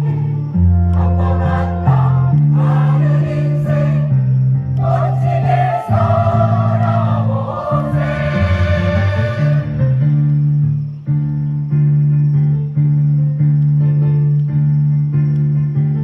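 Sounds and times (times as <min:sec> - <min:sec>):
choir singing: 0:00.0 - 0:10.2.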